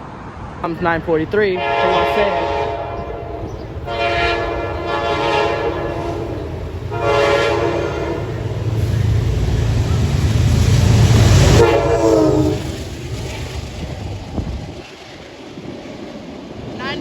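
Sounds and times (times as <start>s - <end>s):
deep rumble of approaching train: 0.0s - 17.0s
train horn blasts: 1.6s - 8.7s, 11.2s - 12.8s.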